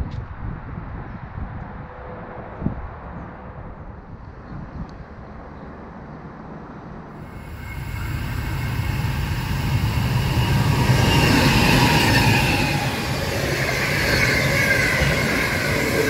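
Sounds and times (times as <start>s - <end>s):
freight train rumbling past: 0.6s - 16.0s
wheels squealing on rails: 7.2s - 16.0s.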